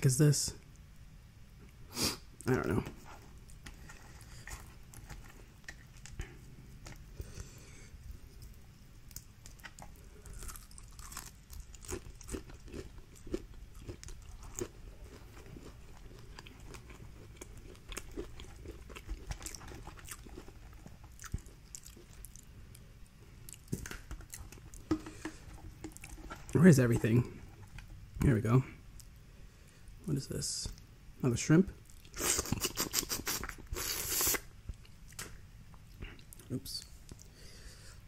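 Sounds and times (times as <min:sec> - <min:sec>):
chewing and crunching: 0:03.4 - 0:07.6, 0:08.3 - 0:28.0.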